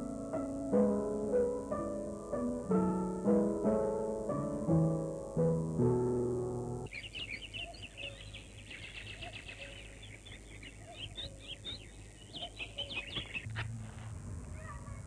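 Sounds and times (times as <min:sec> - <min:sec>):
low steady hum: 0:00.0 - 0:15.0
birds chirping: 0:06.8 - 0:13.7.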